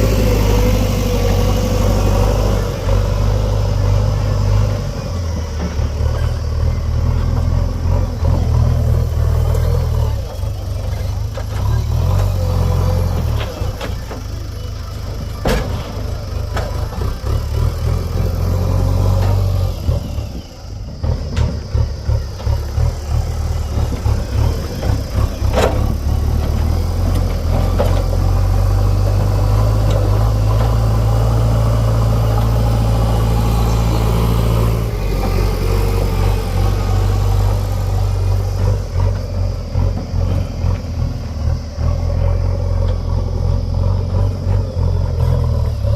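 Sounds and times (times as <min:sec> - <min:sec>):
heavy diesel engine working: 0:00.0 - 0:45.9.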